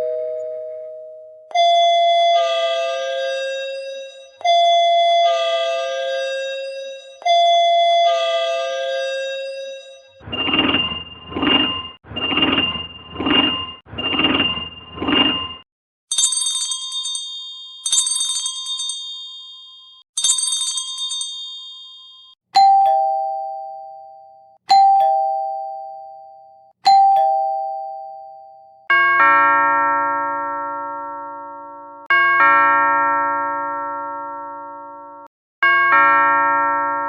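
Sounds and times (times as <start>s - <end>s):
ding-dong doorbell chimes: 0.0s - 10.2s, 16.1s - 37.0s
electronic doorbell ring: 0.0s - 10.2s, 16.1s - 37.0s
high electronic chimes: 8.9s - 15.6s.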